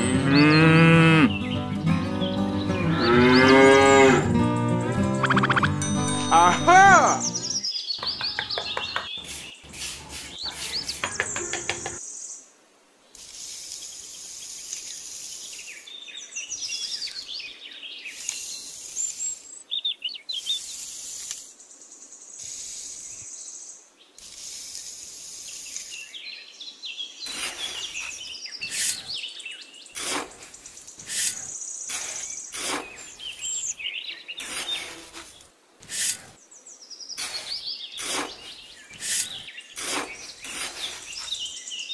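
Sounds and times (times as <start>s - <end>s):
birds chirping: 0.0s - 12.5s, 13.1s - 24.3s, 25.3s - 41.9s
metal trowel scraping damp sand: 9.1s - 12.0s, 27.3s - 29.1s, 29.9s - 33.7s, 34.4s - 36.4s, 37.2s - 41.6s.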